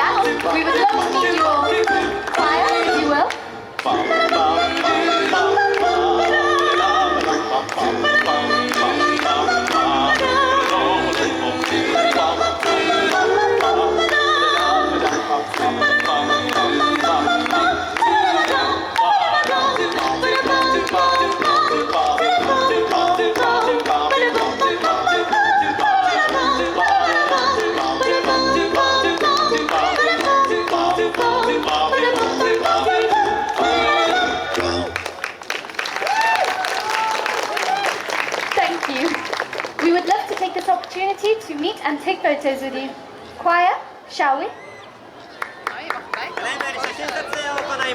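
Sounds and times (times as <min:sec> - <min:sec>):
choir singing in harmony: 0:00.0 - 0:35.1.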